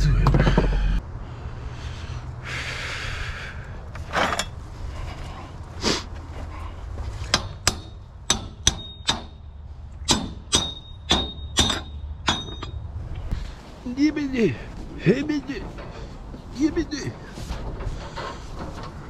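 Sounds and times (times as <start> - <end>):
hammer striking metal: 7.3 - 9.4, 10.0 - 12.8.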